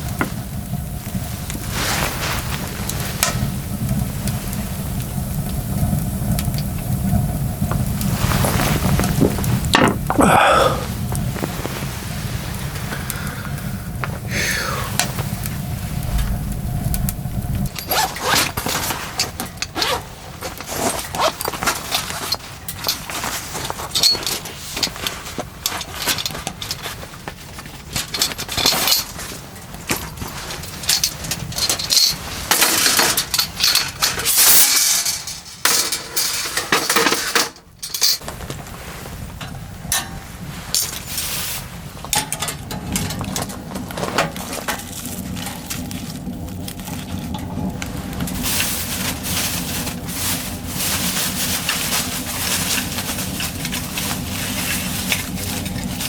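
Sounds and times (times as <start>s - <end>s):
small hard objects clinking: 16.0s - 27.1s, 27.8s - 37.2s, 42.1s - 56.0s.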